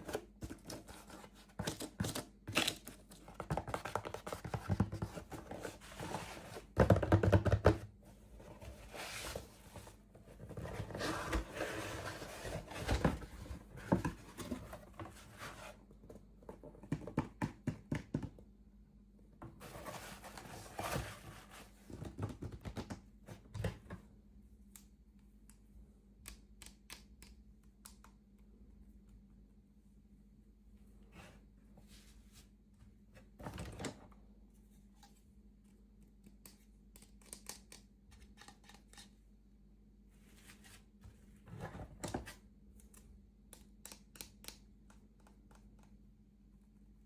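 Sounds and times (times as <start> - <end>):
small sharp clicks and taps: 24.7 - 28.4, 42.8 - 46.0.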